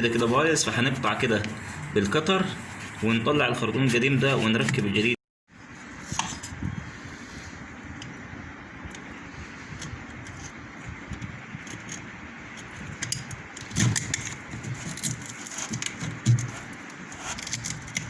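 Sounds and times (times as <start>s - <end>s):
small clicks and scrapes: 8.9s - 18.0s.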